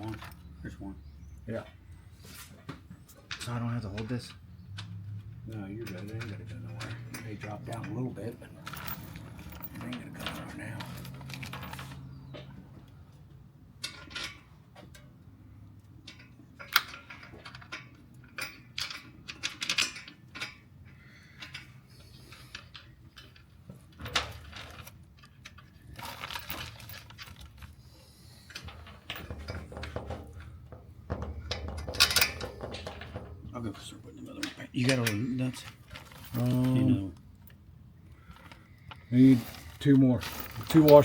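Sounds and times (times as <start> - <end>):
metal hardware clinking: 3.2 - 12.1, 28.5 - 37.6, 38.3 - 41.0.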